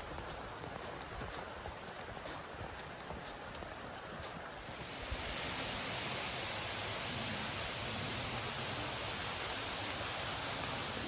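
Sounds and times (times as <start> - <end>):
wind noise: 0.0 - 11.0
waterfall rushing: 4.6 - 11.0.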